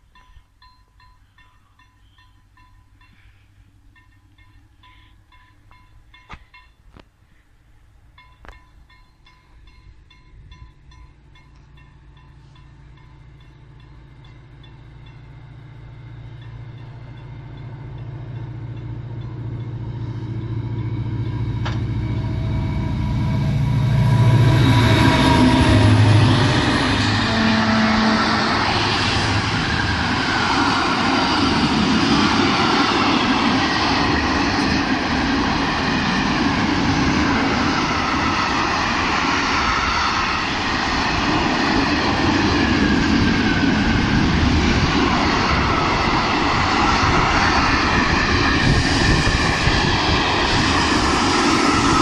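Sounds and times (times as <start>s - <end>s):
train rumbling past: 0.0s - 52.0s
whines sliding in pitch: 20.4s - 52.0s.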